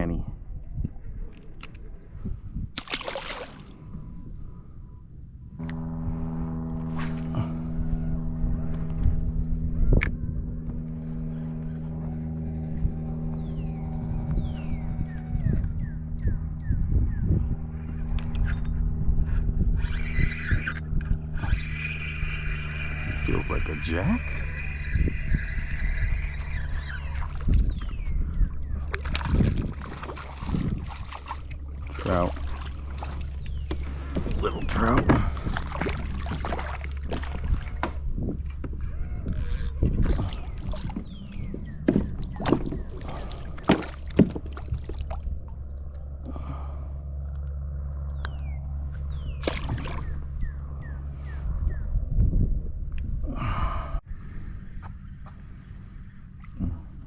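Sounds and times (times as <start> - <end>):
steady low hum: 0.0 - 57.0
water splashing: 2.8 - 3.8, 28.8 - 38.0, 39.9 - 45.9, 49.4 - 50.3
electric motor humming: 5.5 - 16.7, 17.6 - 28.8.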